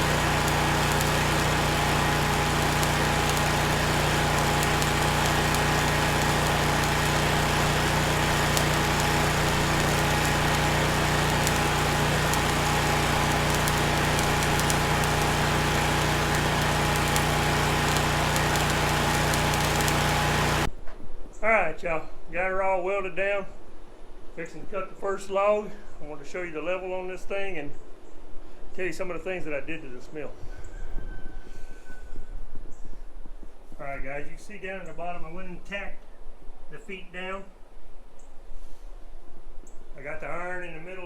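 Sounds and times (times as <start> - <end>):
small engine drone: 0.0 - 20.7
welding hiss and crackles: 0.0 - 20.7.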